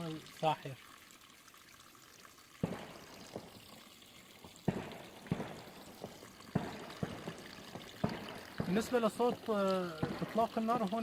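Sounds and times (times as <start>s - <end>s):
running water trickling: 0.0s - 11.0s
gunshots with echo: 4.7s - 5.7s, 6.5s - 7.4s.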